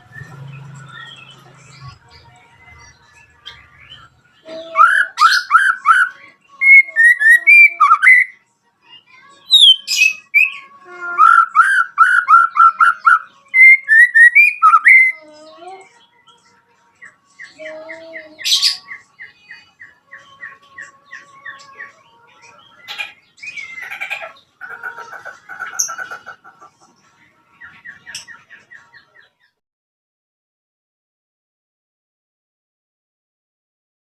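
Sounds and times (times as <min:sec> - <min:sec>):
bird singing loud whistled notes: 0:00.0 - 0:02.0, 0:03.4 - 0:08.4, 0:09.5 - 0:15.2, 0:22.7 - 0:24.4.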